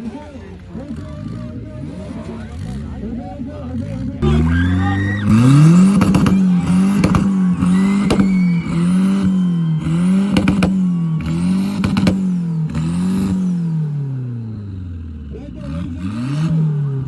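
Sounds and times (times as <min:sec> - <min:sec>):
car engine revving: 0:00.0 - 0:17.0
exhaust cracks and pops: 0:04.5 - 0:13.5.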